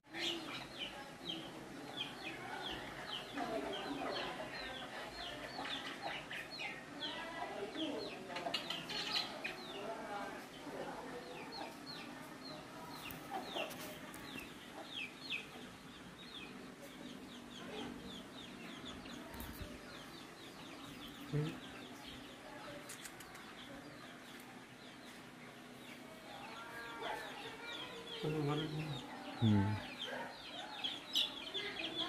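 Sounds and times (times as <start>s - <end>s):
birds chirping: 0.1s - 32.0s.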